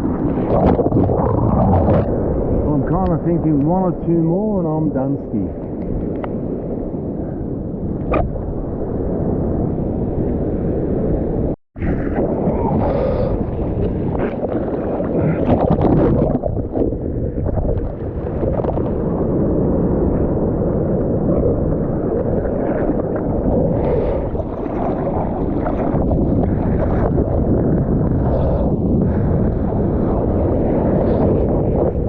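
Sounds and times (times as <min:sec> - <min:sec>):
strong wind buffeting microphone: 0:00.0 - 0:32.0
sea water sloshing: 0:11.8 - 0:19.3, 0:21.9 - 0:27.6.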